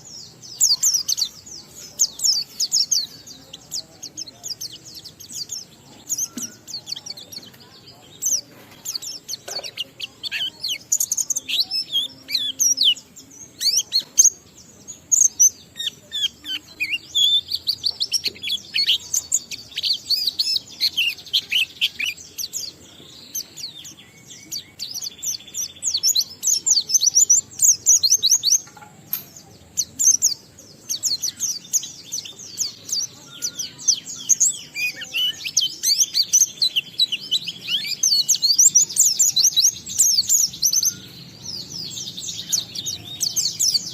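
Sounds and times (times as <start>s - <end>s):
bird singing rapid high chirps: 0.0s - 43.9s.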